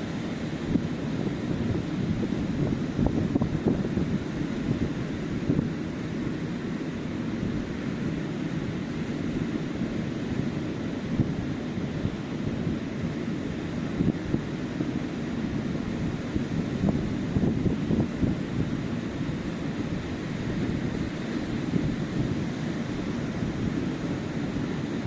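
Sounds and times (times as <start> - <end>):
ocean surf washing onto beach: 0.0 - 25.0
wind buffeting microphone: 0.6 - 5.8, 15.4 - 25.0.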